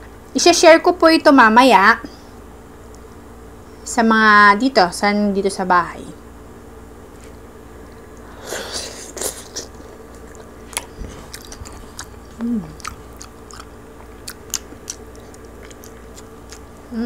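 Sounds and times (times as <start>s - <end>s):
crunchy biting and chewing: 8.7s - 17.0s
person humming: 12.3s - 13.0s.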